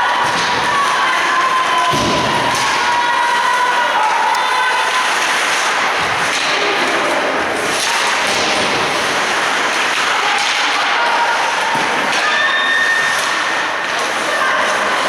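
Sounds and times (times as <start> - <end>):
players and spectators shouting: 0.0 - 5.3.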